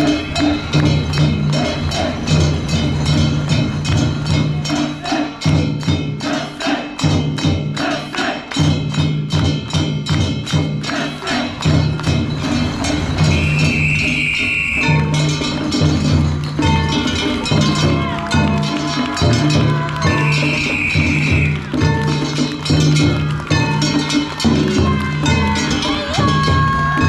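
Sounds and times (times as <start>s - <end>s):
low drumming: 0.0s - 6.4s
fast struck percussion: 0.0s - 27.0s.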